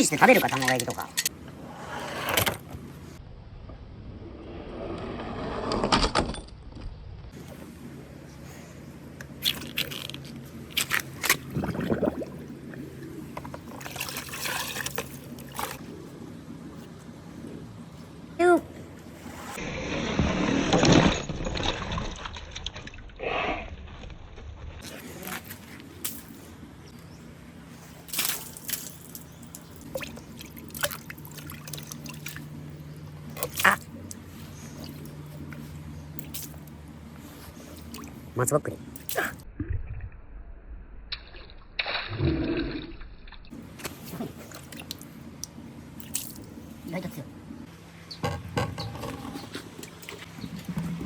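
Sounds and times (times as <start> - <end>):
water trickling and splashing: 0.0 - 1.3, 9.4 - 15.8, 27.8 - 39.4, 41.2 - 47.2, 48.7 - 51.0
low steady hum: 6.2 - 51.0
water dripping and plopping: 29.5 - 32.5.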